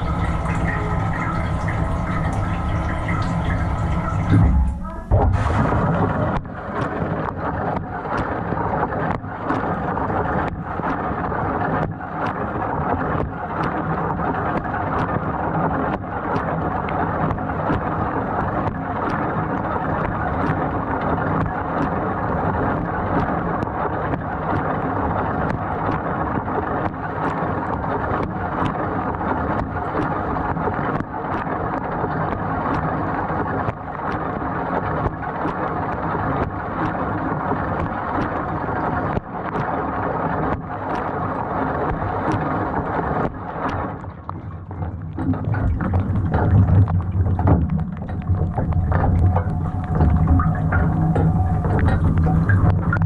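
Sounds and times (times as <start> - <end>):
dishwasher pump running: 0.0 - 6.4, 44.6 - 53.0
water spraying and splashing: 0.0 - 8.9, 24.5 - 53.0.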